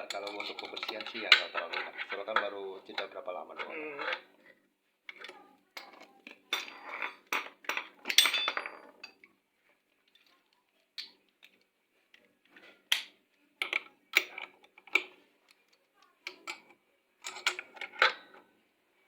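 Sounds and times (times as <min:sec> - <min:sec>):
metal tools clinking and clattering: 0:00.0 - 0:04.3, 0:05.2 - 0:09.3, 0:16.4 - 0:18.4.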